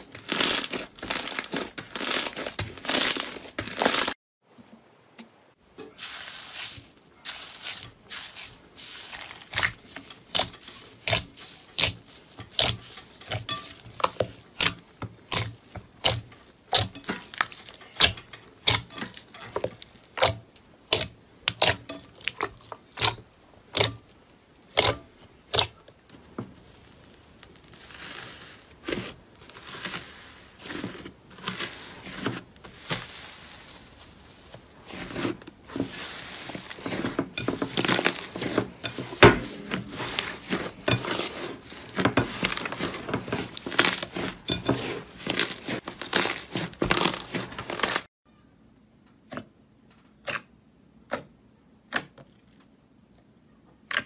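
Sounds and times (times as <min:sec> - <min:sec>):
slime popping and crackling: 0:09.1 - 0:24.0, 0:45.2 - 0:48.0.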